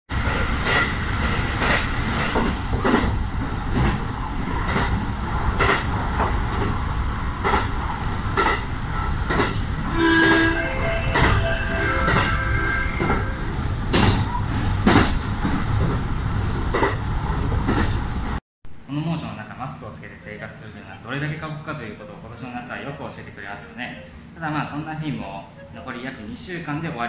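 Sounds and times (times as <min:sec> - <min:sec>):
train running rumble: 0:00.1 - 0:18.4
short tone: 0:10.2 - 0:13.5.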